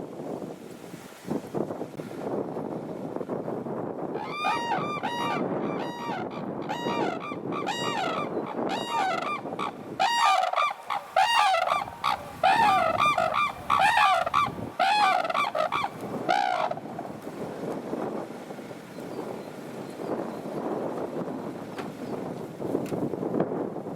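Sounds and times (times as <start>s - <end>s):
wind rumble on microphone: 0.0s - 23.9s
cranes trumpeting calls: 4.2s - 16.9s.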